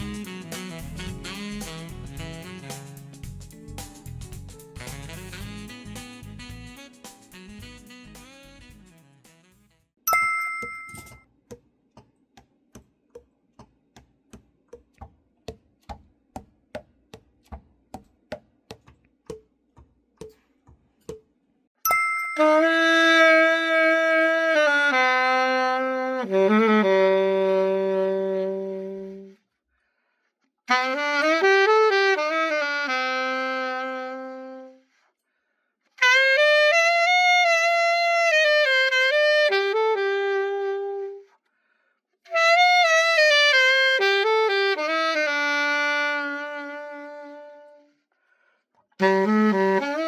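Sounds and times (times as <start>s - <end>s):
alto saxophone playing: 0.0s - 3.2s, 4.7s - 9.9s, 22.4s - 29.4s, 30.7s - 34.9s, 36.0s - 41.3s, 42.3s - 48.0s, 49.0s - 50.0s.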